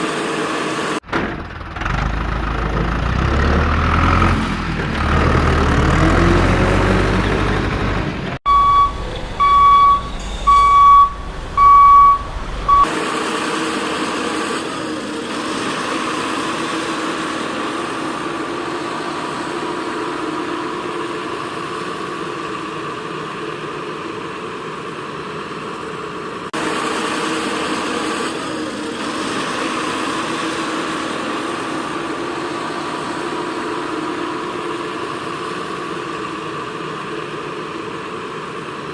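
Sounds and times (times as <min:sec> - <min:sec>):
reversing alarm beeping: 0:08.5 - 0:12.9.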